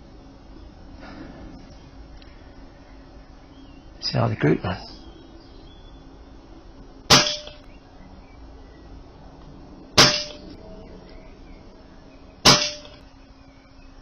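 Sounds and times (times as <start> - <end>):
air rifle shots: 7.1 - 7.7, 10.0 - 10.6, 12.4 - 13.1.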